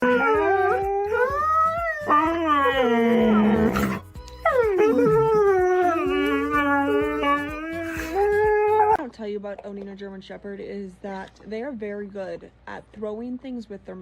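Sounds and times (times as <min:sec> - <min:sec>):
dog howling: 0:00.0 - 0:09.0.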